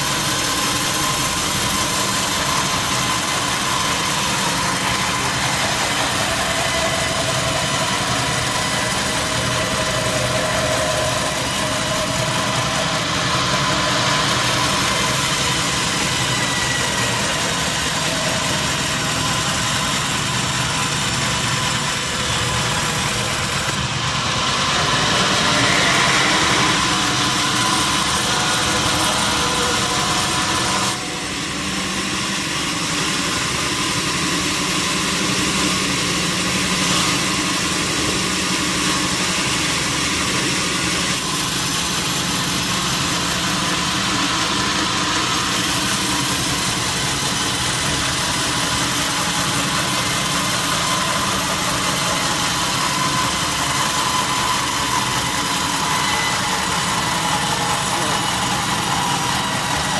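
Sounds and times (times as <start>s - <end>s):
sawmill machinery hum and whine: 0.0s - 59.9s.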